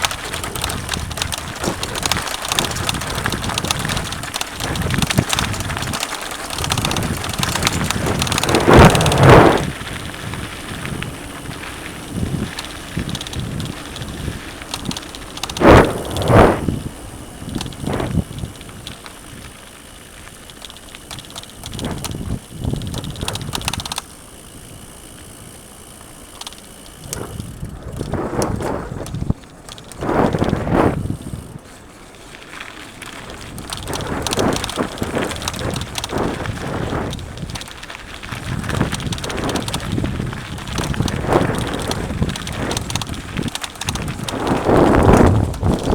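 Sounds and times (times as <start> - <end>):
bike clattering over bumps: 0.0 - 45.9
bike tyres on dirt trail: 0.0 - 45.9.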